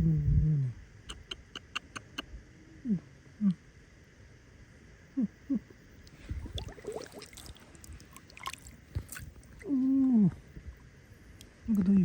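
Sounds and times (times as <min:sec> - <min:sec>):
water squishing and sloshing: 0:06.1 - 0:09.7.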